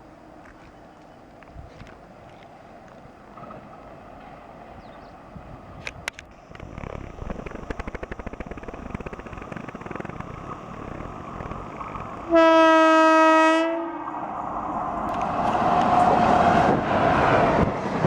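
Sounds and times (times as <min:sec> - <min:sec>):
train rail rumble with clicking: 0:00.0 - 0:18.0
locomotive horn blast: 0:12.3 - 0:14.1.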